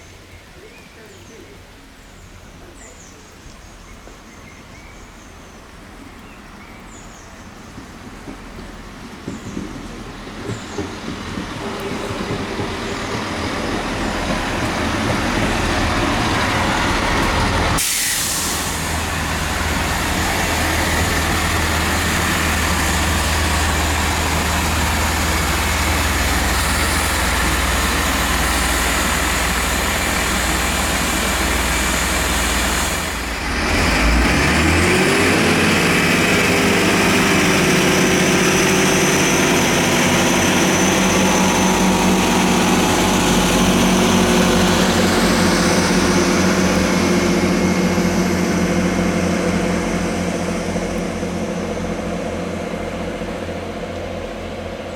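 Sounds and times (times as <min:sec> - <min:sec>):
diesel train engine humming: 0:07.5 - 0:54.9.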